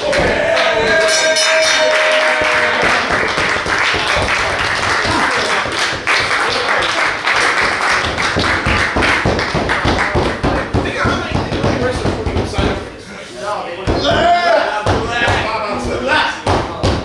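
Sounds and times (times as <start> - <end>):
crowd applauding and cheering: 0.0 - 11.0.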